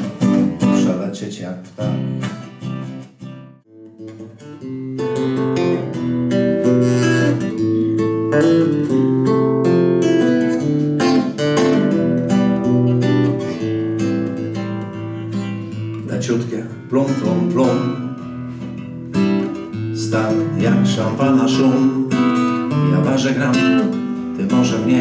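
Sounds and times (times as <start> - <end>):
acoustic guitar playing: 0.0 - 25.0.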